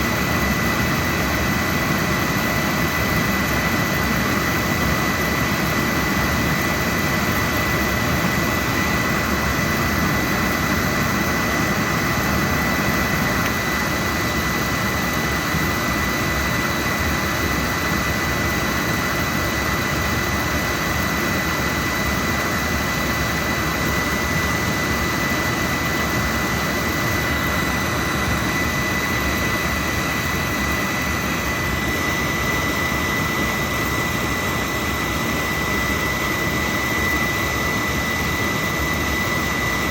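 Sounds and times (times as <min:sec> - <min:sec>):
high-pitched whine: 0:00.0 - 0:39.9
oil burner rushing: 0:00.0 - 0:39.9.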